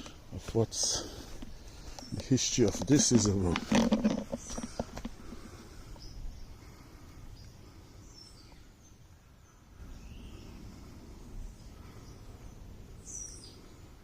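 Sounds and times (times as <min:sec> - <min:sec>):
bird chirps: 0:07.3 - 0:10.8, 0:11.5 - 0:13.8.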